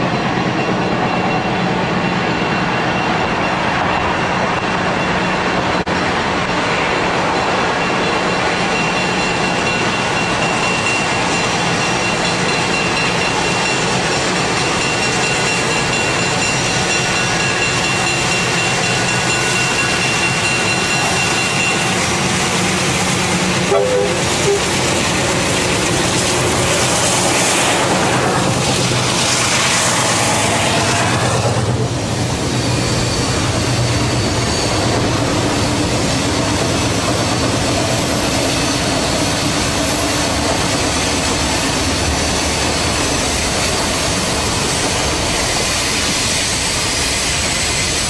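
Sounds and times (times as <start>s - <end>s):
diesel locomotives rumbling: 0.0s - 48.0s
steady horn-like tone: 23.6s - 24.7s.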